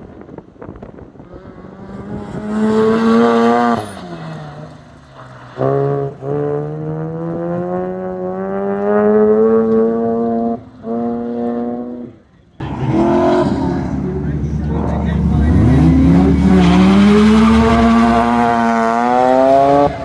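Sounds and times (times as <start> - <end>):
rotary engine exhaust note: 12.6 - 20.0.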